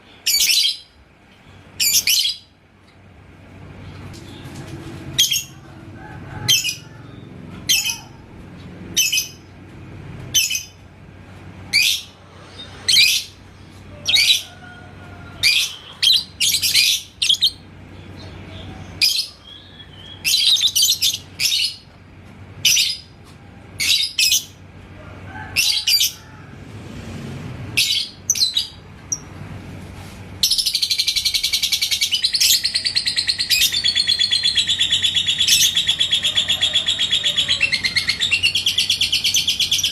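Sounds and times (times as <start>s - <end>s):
lovebird chirping: 30.4s - 39.9s
lovebird rapid trill: 30.4s - 39.9s.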